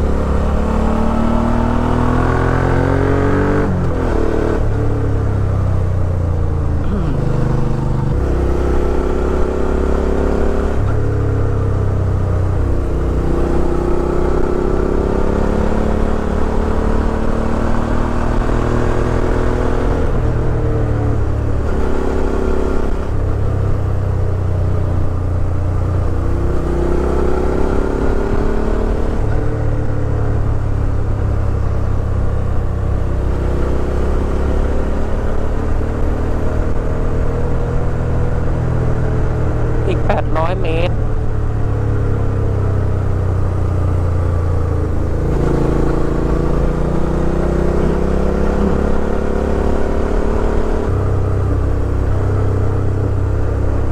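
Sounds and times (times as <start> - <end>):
motorcycle engine running: 3.8 - 17.5.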